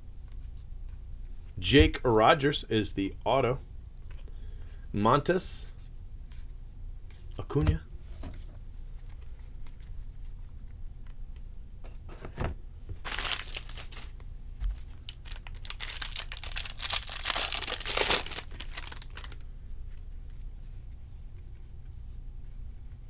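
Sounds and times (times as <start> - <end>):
wrapper tearing and crinkling: 13.0 - 19.4.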